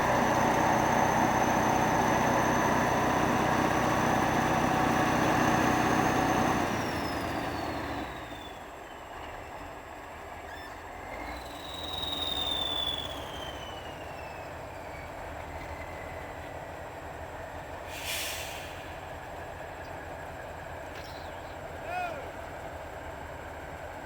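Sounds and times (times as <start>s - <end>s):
tractor diesel engine running: 0.0s - 8.6s.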